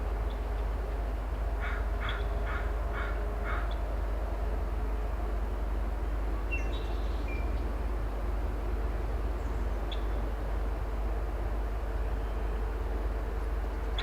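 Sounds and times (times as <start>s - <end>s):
distant excavator engine rumble: 0.0s - 14.0s.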